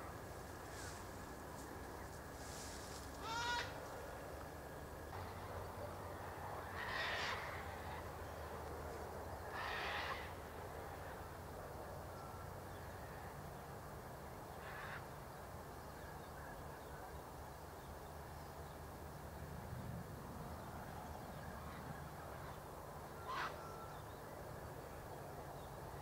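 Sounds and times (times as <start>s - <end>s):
low background hiss: 0.0s - 26.0s
bird calling harshly: 3.2s - 3.8s.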